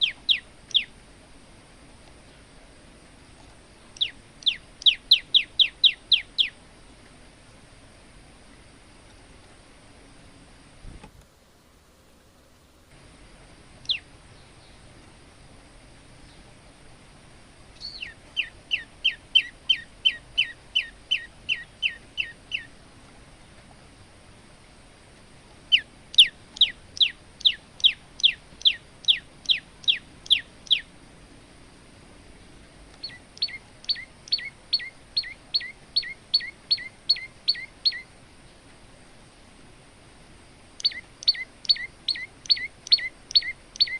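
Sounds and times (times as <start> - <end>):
bird singing rapid falling notes: 0.0 - 1.0, 3.8 - 6.6, 13.8 - 14.9, 17.8 - 22.8, 25.7 - 30.9, 33.0 - 38.1, 40.8 - 43.9.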